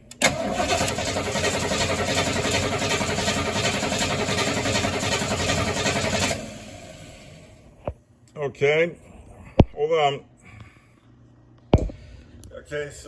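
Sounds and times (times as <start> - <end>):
engine cranking by starter motor: 0.1 - 7.6.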